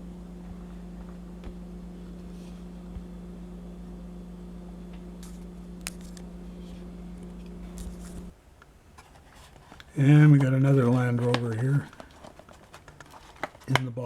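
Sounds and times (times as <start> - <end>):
low electrical hum: 0.0 - 9.2.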